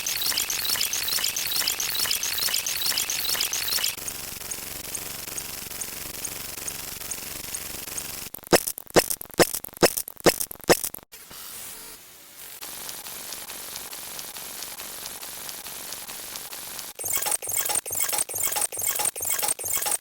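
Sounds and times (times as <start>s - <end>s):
sharp clicks: 0.0s - 4.1s, 17.0s - 20.0s
faint regular ticks: 0.0s - 11.0s, 12.6s - 20.0s.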